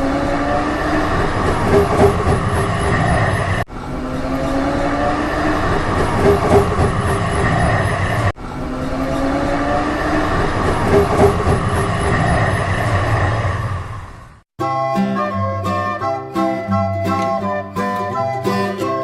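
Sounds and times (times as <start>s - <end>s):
vehicle rumbling and clattering: 0.0s - 14.4s.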